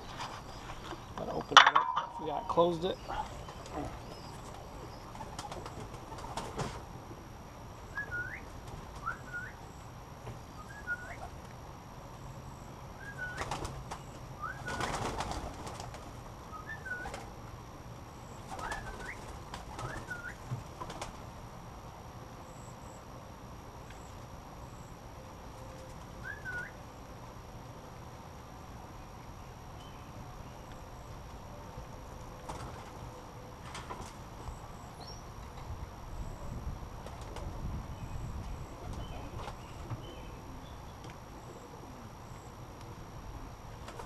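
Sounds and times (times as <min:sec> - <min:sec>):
pigeons flapping wings: 0:03.2 - 0:06.8, 0:08.5 - 0:09.2, 0:13.1 - 0:17.4, 0:18.4 - 0:21.2, 0:32.4 - 0:33.0, 0:33.6 - 0:34.2, 0:37.0 - 0:37.6, 0:43.7 - 0:44.0.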